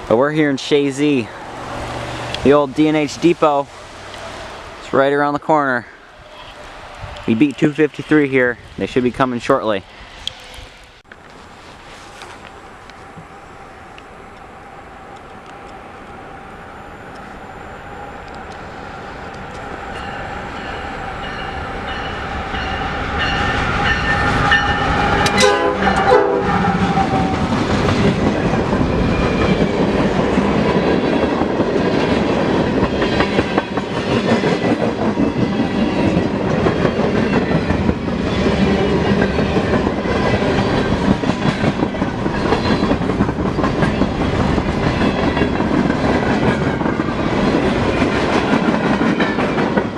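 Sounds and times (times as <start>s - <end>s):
freight train passing: 0.0s - 49.9s
wheels clacking over rail joints: 11.0s - 49.9s
train horn: 19.9s - 27.6s.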